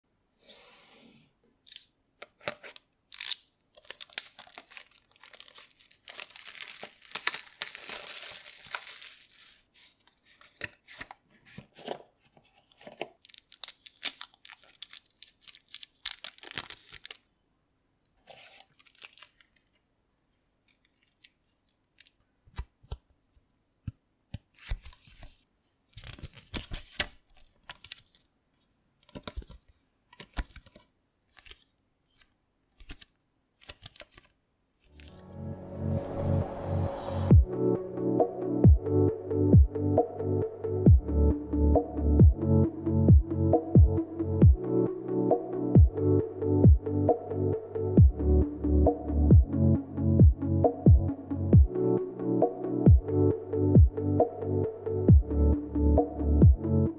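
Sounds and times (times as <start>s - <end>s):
wrapping tearing and crinkling: 1.7s - 11.1s, 11.7s - 17.3s, 18.2s - 19.8s, 20.6s - 23.0s, 24.5s - 28.3s, 29.0s - 35.2s.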